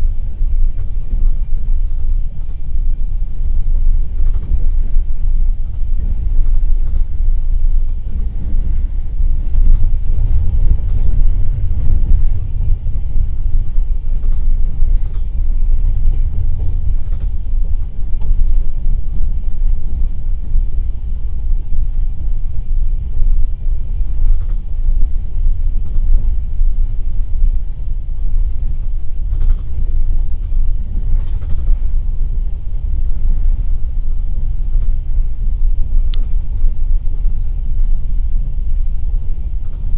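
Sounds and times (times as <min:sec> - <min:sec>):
train wheels rumbling on track: 0:00.0 - 0:39.9
faint clicks: 0:36.0 - 0:36.4, 0:39.6 - 0:39.9.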